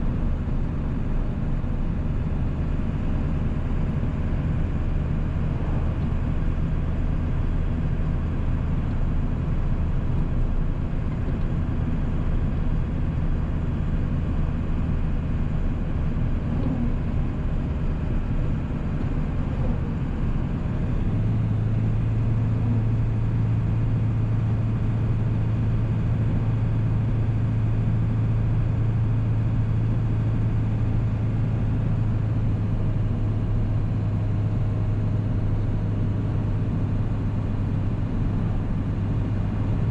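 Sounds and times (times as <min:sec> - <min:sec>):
diesel engine drone: 0:00.0 - 0:39.9
road noise: 0:00.0 - 0:39.9.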